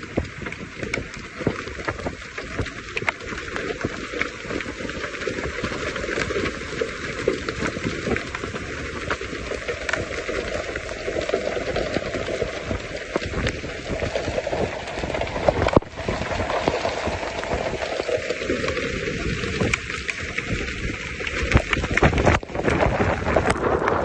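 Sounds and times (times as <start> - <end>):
rain: 0.0 - 24.0
running water: 0.0 - 24.0
small crackling ticks: 0.0 - 24.0.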